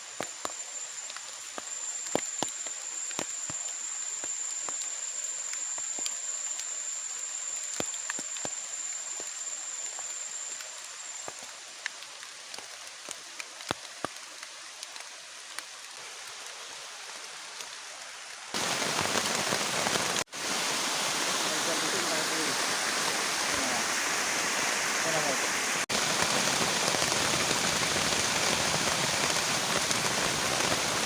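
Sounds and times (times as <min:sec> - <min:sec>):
thin high whine: 0:00.0 - 0:11.8, 0:18.6 - 0:25.8
steady rain: 0:00.0 - 0:31.0
sharp drips: 0:00.2 - 0:16.0.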